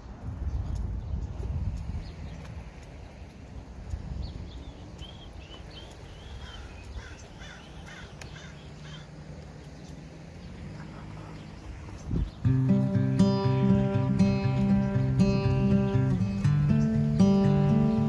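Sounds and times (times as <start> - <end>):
wind rumble on microphone: 0.0 - 18.0
bird calling: 4.2 - 18.0.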